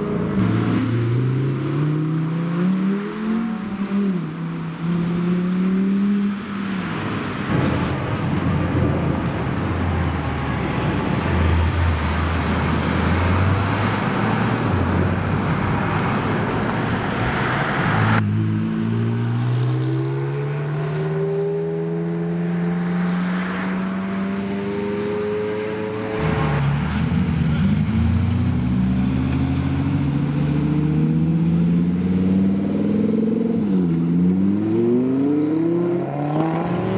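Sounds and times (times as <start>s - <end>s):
car engine accelerating: 24.2s - 36.9s.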